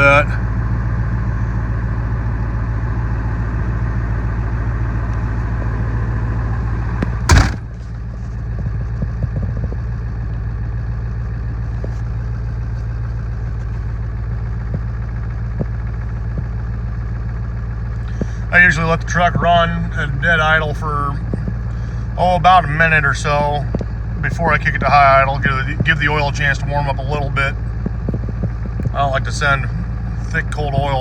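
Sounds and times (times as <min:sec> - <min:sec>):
diesel engine idling: 0:00.0 - 0:31.0
loud thump: 0:07.3 - 0:07.9.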